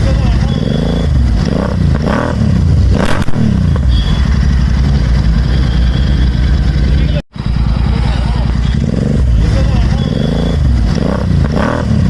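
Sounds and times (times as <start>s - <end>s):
exhaust crack: 0.0s - 12.0s
motorcycle engine revving and idling: 0.0s - 12.0s.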